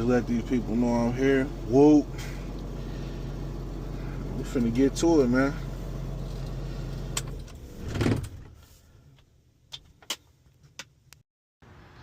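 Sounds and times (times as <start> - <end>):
truck engine idling: 0.0 - 7.4
clicks and clunks from cab: 6.3 - 8.6.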